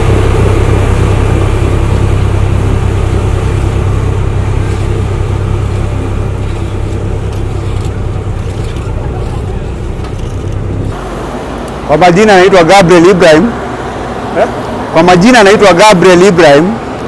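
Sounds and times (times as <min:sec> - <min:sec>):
large machinery engine humming: 0:00.0 - 0:17.0.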